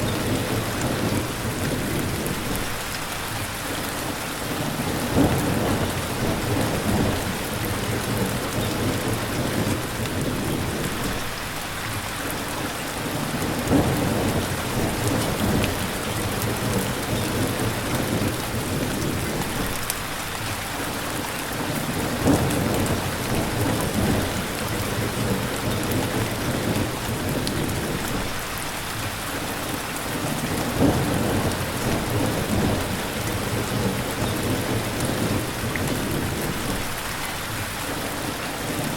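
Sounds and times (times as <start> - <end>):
thunder rumbling: 0.0 - 2.8, 4.6 - 11.4, 13.2 - 20.0, 21.6 - 28.5, 30.2 - 37.1
steady rain falling: 0.0 - 38.9.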